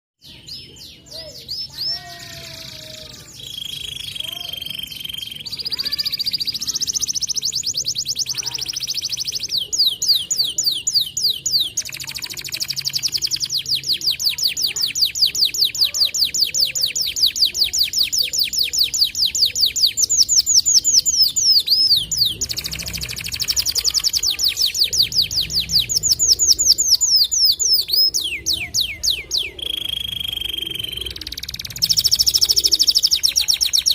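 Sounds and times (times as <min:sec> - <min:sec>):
canary singing trills: 0:00.2 - 0:33.9.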